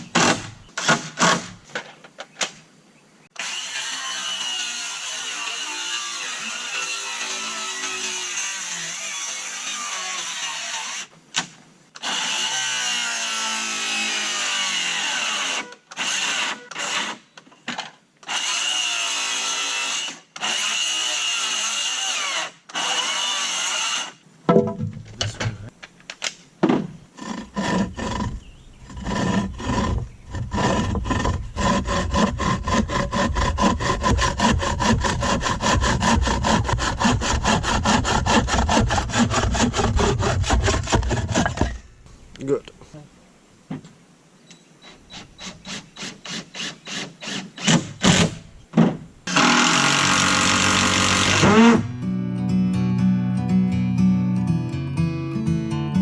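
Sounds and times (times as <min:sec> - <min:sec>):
handsaw cutting wood: 0:00.0 - 0:01.6, 0:03.4 - 0:11.1, 0:12.0 - 0:17.2, 0:27.1 - 0:41.8, 0:44.9 - 0:48.5, 0:49.3 - 0:51.9
power tool running: 0:49.3 - 0:51.9.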